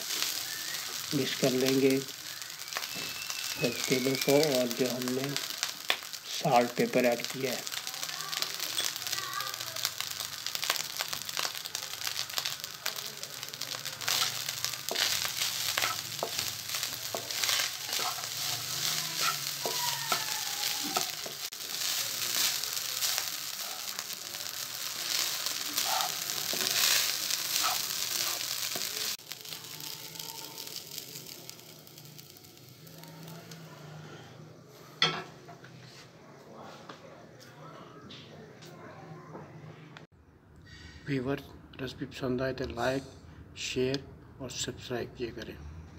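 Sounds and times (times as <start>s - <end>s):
fried rice sizzling in pan: 0.0s - 35.1s
wooden spatula scraping: 14.0s - 29.1s.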